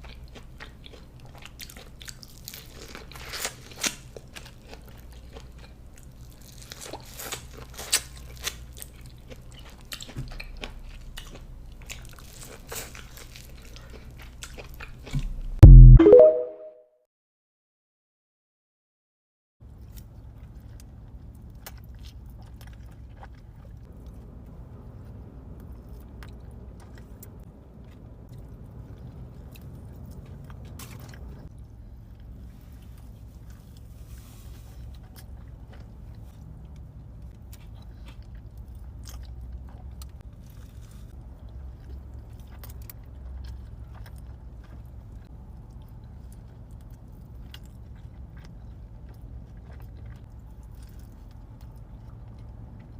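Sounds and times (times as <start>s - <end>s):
person biting and chewing food: 0.1s - 16.2s.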